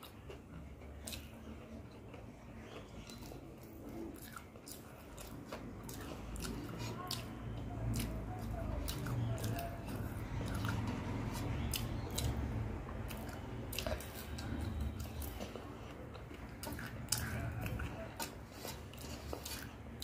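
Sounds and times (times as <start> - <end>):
wet chewing mouth sounds: 0.0 - 20.0.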